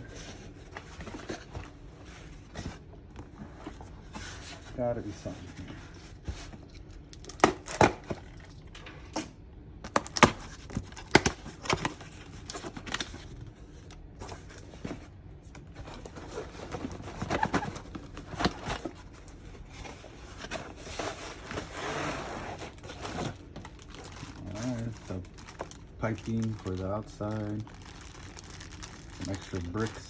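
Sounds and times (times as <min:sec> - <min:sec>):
plastic bags crinkling: 0:22.4 - 0:30.0.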